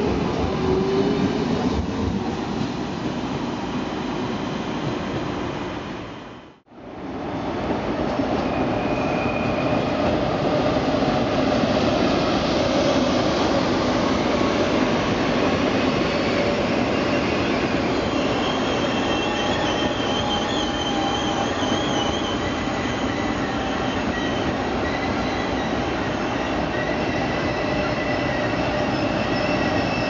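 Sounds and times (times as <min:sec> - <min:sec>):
high wavering brake squeal: 0:08.4 - 0:10.0, 0:15.8 - 0:30.0.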